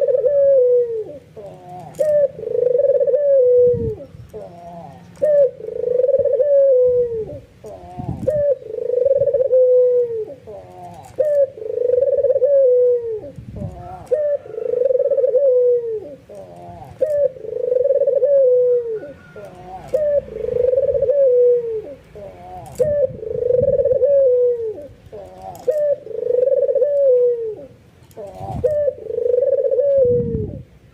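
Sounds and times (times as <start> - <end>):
dove cooing: 0.0 - 30.9.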